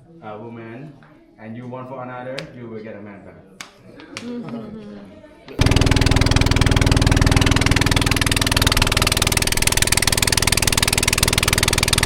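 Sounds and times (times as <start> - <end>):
motor engine running: 5.6 - 12.0.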